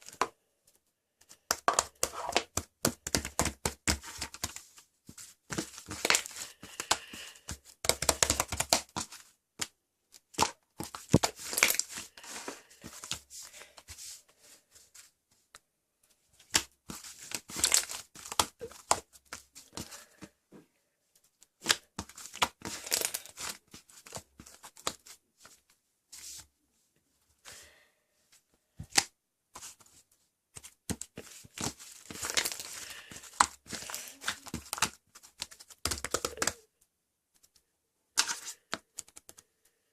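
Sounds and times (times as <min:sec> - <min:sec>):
crinkling and tearing: 0:31.2 - 0:36.6.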